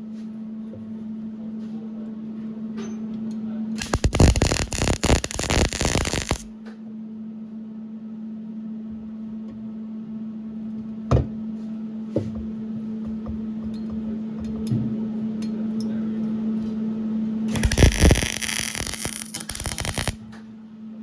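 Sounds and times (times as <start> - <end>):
welder crackling: 3.8 - 6.5, 17.5 - 20.2.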